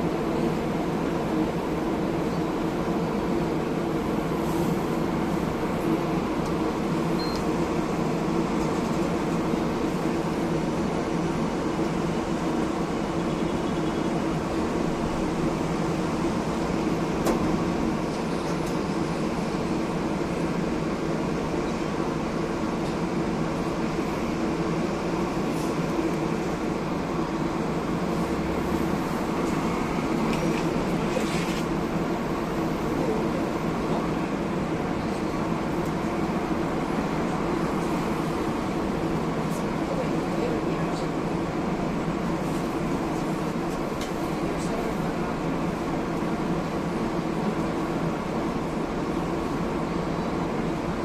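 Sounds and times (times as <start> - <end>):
tram hum and rumble: 0.0 - 51.0.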